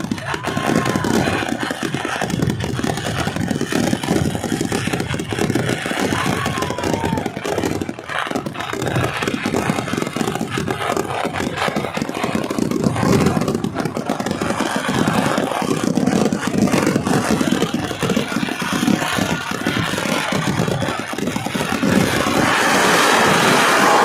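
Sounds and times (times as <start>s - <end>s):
firecracker bangs: 0.0s - 24.0s.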